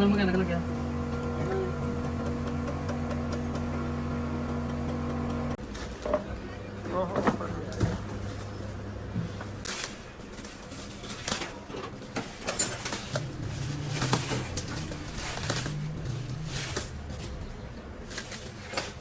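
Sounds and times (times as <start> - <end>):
low wavering hum: 0.0 - 5.6, 12.4 - 18.6.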